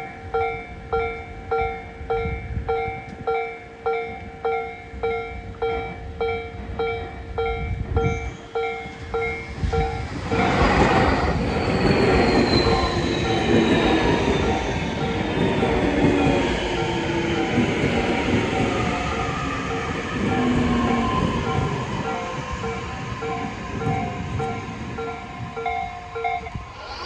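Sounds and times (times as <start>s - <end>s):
electric train braking: 8.2s - 27.0s.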